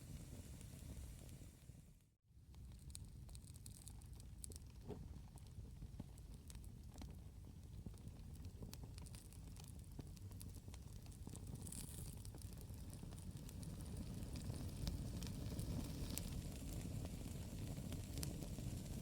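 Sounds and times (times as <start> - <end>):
campfire crackling: 8.0 - 19.0.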